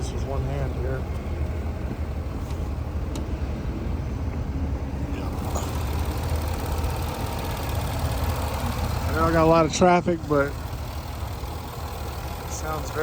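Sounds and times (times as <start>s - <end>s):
car engine idling: 4.8s - 13.0s.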